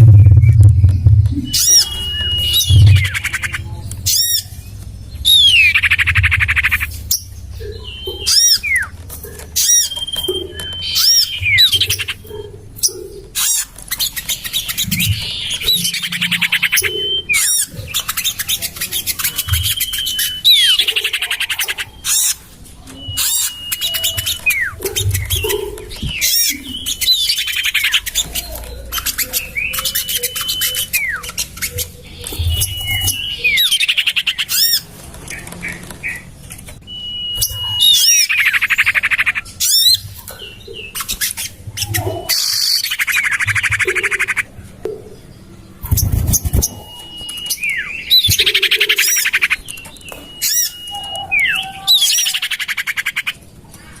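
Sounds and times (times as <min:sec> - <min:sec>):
bird downward trill: 0:00.0 - 0:04.6, 0:14.2 - 0:20.8
bird chirps and whistles: 0:00.0 - 0:22.4, 0:23.0 - 0:34.9, 0:36.9 - 0:44.4, 0:45.8 - 0:53.3.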